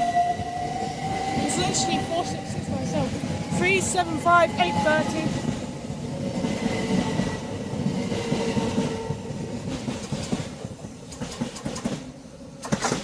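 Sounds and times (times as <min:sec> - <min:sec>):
electric train running through: 0:00.0 - 0:13.0
wheels clicking over rail joints: 0:07.2 - 0:13.0.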